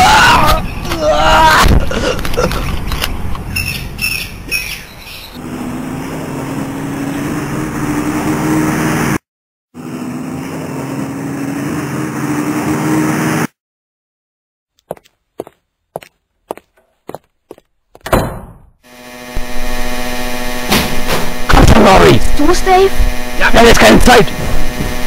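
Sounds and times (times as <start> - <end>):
car engine humming: 2.2 - 9.2, 19.0 - 25.0
sharp knocks: 18.0 - 18.8.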